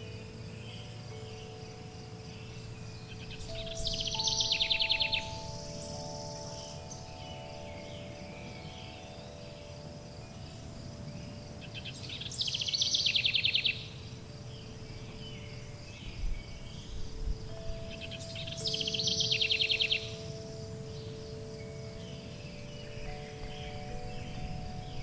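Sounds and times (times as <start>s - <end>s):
birdsong: 0.0s - 25.0s
faint high insect-like pulsing: 0.0s - 25.0s
sustained ringing chime tones: 0.0s - 25.0s
bird trilling: 2.4s - 9.3s, 17.8s - 20.3s.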